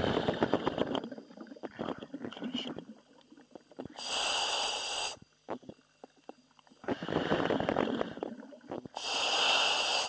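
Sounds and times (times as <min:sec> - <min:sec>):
diver exhaling gurgling: 0:00.0 - 0:02.9, 0:06.8 - 0:10.0
demand valve hiss: 0:03.9 - 0:05.2, 0:09.0 - 0:10.0.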